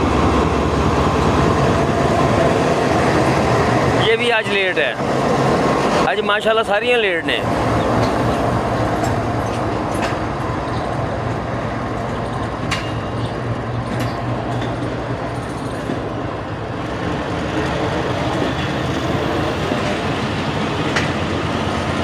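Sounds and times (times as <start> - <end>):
diesel locomotive engine drumming: 0.0 - 22.0
rumble of moving coaches: 0.0 - 22.0
wheels clicking over rail joints: 9.0 - 16.2.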